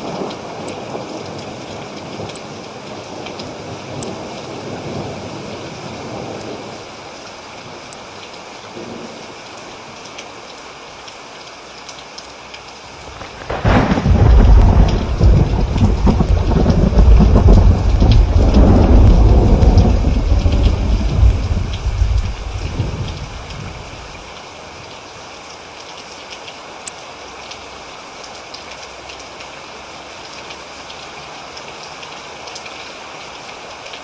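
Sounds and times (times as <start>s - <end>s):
steady rain falling: 0.0s - 34.0s
rolling thunder: 13.0s - 24.2s.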